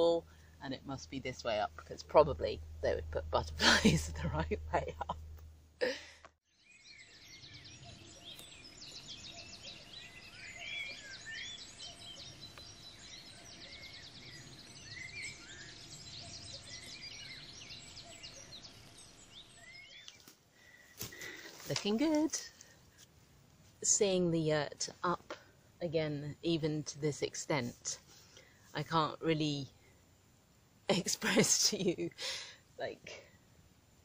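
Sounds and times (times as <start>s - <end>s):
faint outdoor background noise: 0.0s - 34.0s
birds chirping and singing: 6.5s - 20.3s.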